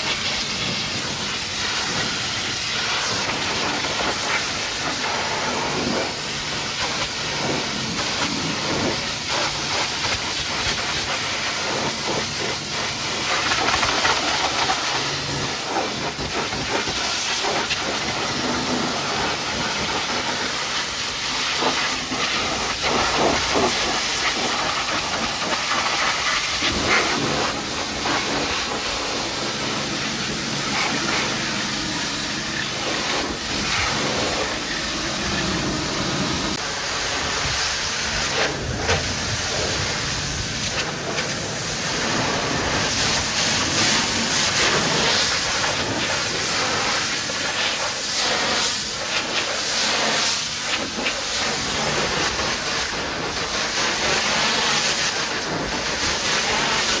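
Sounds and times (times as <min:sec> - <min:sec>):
pressure washer jet hissing: 0:00.0 - 0:57.0
pump humming: 0:00.0 - 0:57.0.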